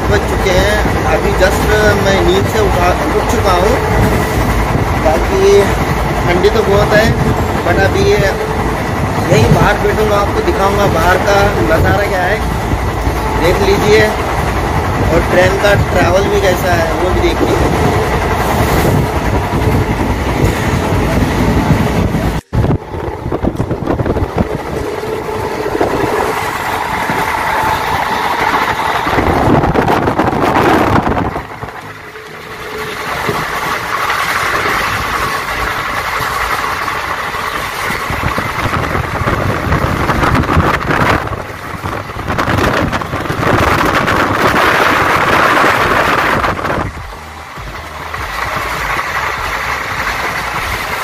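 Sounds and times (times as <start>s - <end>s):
train wheel and track noise: 0.0s - 51.0s
wind on the microphone: 3.8s - 31.9s, 37.8s - 49.0s.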